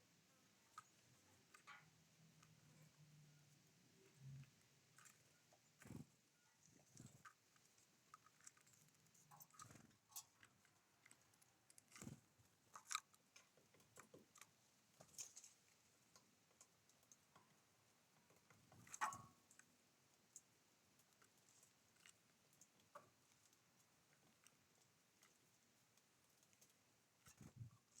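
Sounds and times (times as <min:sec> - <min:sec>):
beaks pecking at seed: 0:00.3 - 0:28.0.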